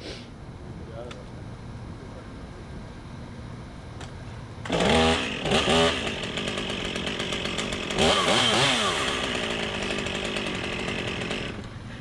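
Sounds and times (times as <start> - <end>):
two-stroke chainsaw revving: 4.6 - 11.7.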